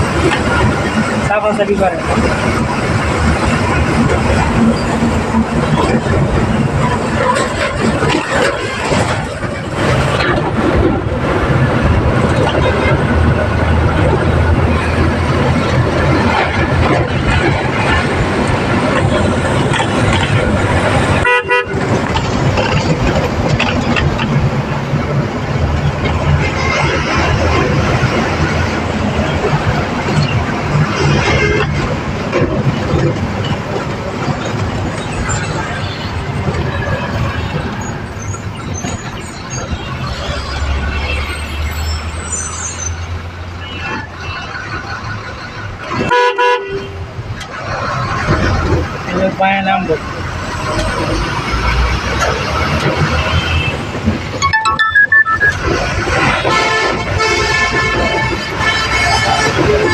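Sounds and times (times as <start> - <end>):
truck engine and road noise: 0.0 - 59.9
vehicle horn honk: 21.2 - 21.8.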